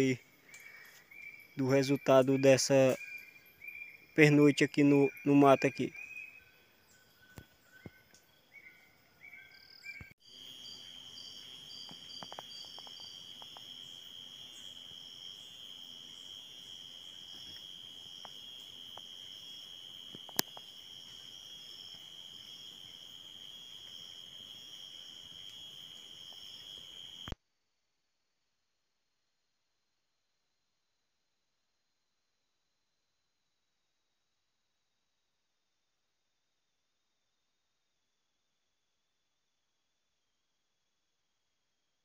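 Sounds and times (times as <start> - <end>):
insects buzzing drone: 0.0 - 27.4.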